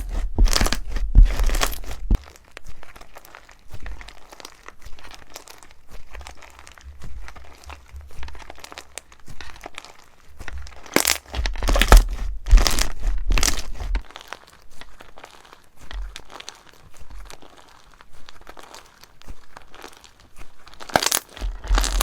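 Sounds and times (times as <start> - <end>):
dull low thuds: 0.0 - 2.2, 10.4 - 14.0, 21.4 - 22.0
slime crackling when squeezed: 10.7 - 15.6, 20.8 - 22.0.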